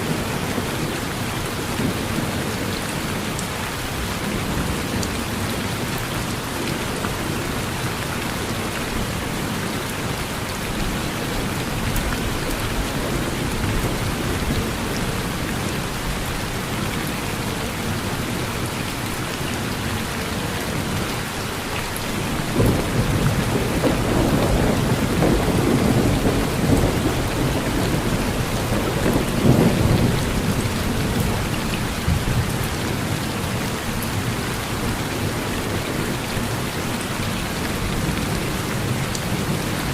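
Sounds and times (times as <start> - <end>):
rain falling on a porch: 0.0 - 39.9
low rumble of thunder: 22.2 - 34.3.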